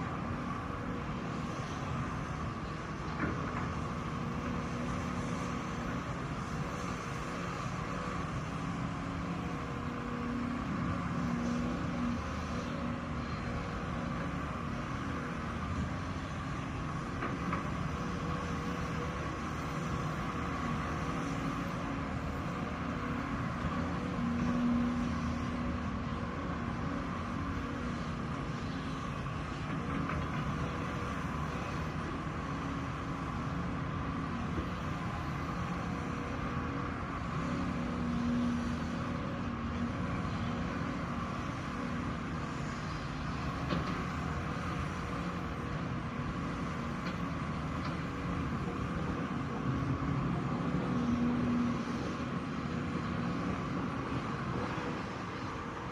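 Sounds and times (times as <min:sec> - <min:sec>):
heavy diesel machinery running: 0:00.0 - 0:55.9.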